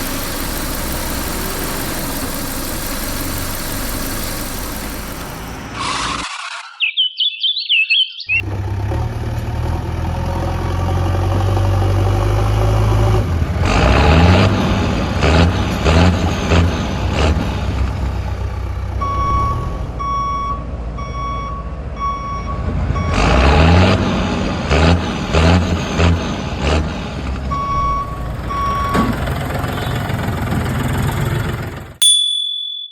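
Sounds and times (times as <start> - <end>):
high warbling sound: 0.0 - 5.8
reversing beeper: 0.0 - 5.8
heavy diesel machine revving: 0.0 - 6.2, 8.4 - 19.5, 22.9 - 32.0.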